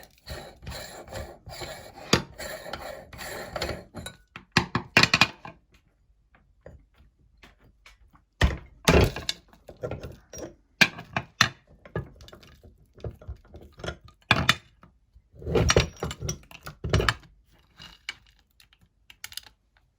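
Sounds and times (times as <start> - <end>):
meat grinder crushing hard candy: 0.0 - 4.0.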